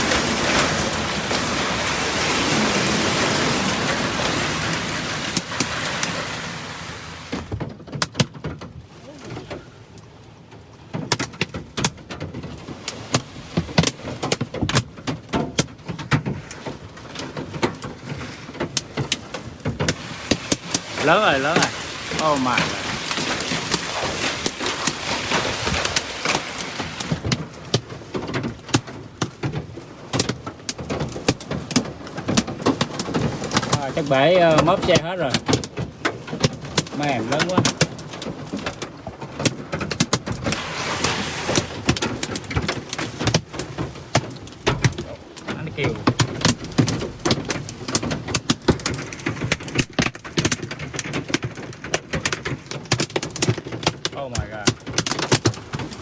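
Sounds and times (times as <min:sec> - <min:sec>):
rain hiss: 0:00.0 - 0:07.6, 0:19.8 - 0:27.4, 0:40.4 - 0:43.8
hailstones pelting a car: 0:00.0 - 0:56.0.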